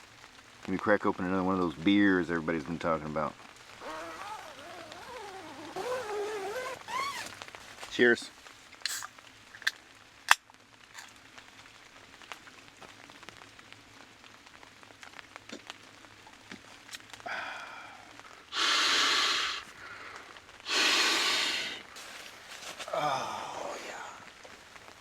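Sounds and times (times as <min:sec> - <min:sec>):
light rain ticking: 0:00.0 - 0:25.0
man exhaling breathily: 0:17.2 - 0:21.9, 0:22.9 - 0:24.3.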